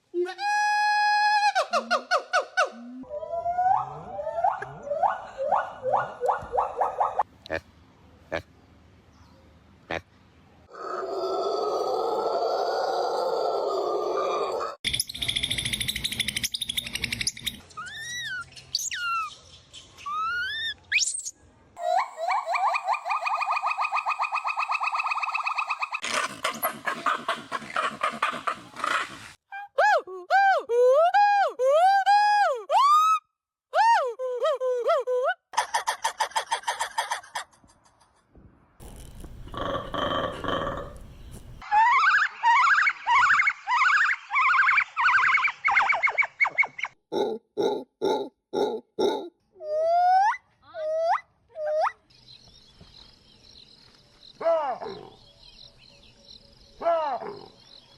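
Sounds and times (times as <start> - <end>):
monkey chirping: 14.8 - 29.1, 41.6 - 52.1
monkey rasping chatter: 26.0 - 29.2, 46.7 - 49.3.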